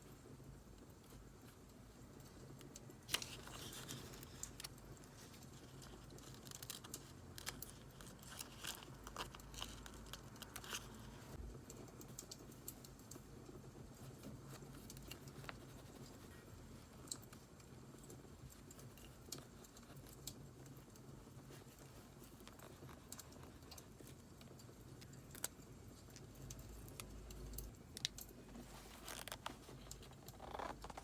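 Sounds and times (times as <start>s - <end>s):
paper rustling: 3.1s - 11.4s, 14.0s - 16.5s, 28.5s - 31.0s.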